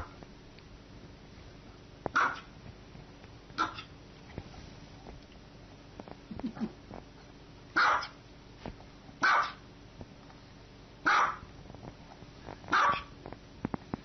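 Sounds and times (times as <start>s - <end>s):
small dog barking: 2.1s - 2.5s, 3.6s - 3.9s, 7.8s - 8.2s, 9.2s - 9.7s, 11.0s - 11.5s, 12.7s - 13.2s.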